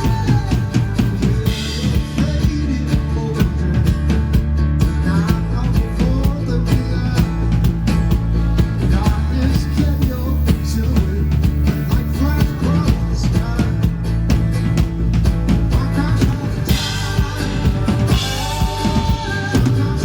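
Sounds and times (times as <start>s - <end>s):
electric guitar: 0.0s - 20.0s
live rock band playing: 0.0s - 20.0s
steady drum beat: 0.0s - 20.0s.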